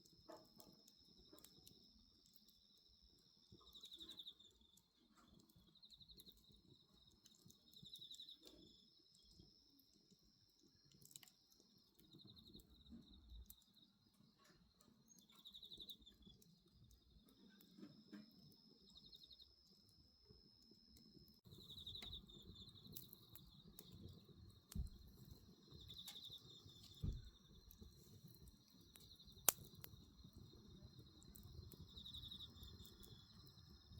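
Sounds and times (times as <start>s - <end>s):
faint crickets chirping: 0.0s - 33.9s
wood bonfire crackling: 0.0s - 33.9s.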